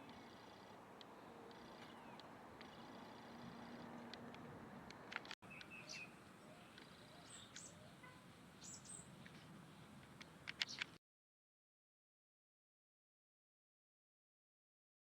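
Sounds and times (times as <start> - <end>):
sharp clicks: 0.0 - 5.7, 10.0 - 11.0
small birds chirping: 0.0 - 11.0
background hiss: 5.5 - 11.0.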